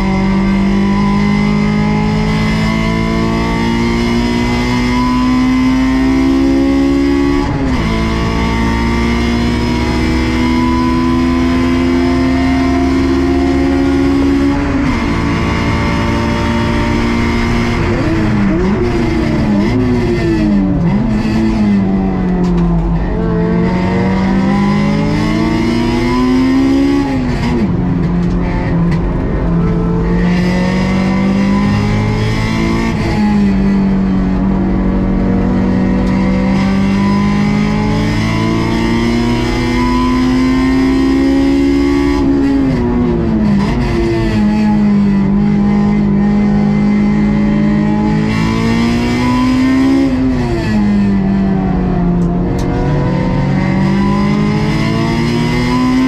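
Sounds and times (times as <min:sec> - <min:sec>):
car engine revving hard: 0:00.0 - 0:56.0.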